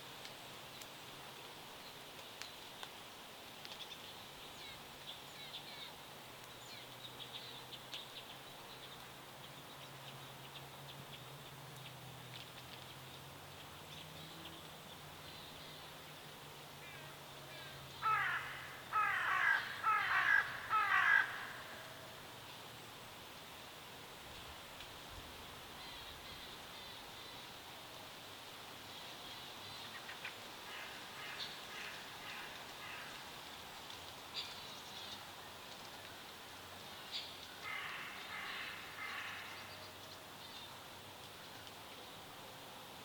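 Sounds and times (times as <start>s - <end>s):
large bird harsh calls: 18.0s - 22.0s.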